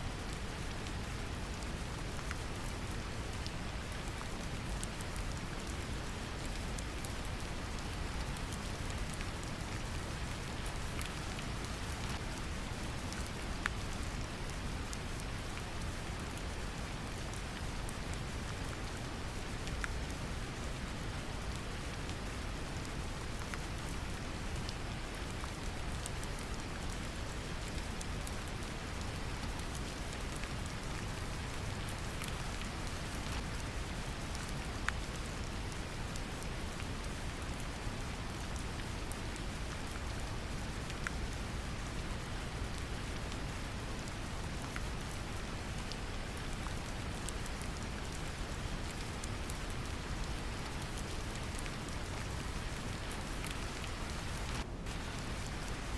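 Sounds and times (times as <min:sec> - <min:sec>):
gentle rain falling: 0:00.0 - 0:55.9
brown noise rumble: 0:52.2 - 0:55.9.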